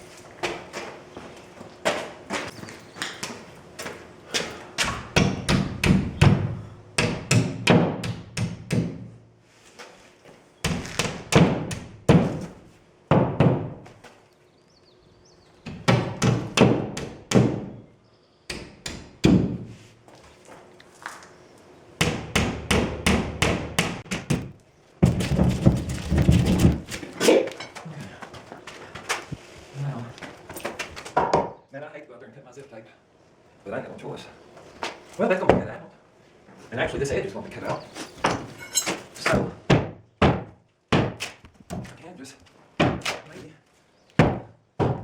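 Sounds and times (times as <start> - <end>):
hammer striking boards: 4.8 - 9.1, 10.7 - 12.4, 15.7 - 17.7.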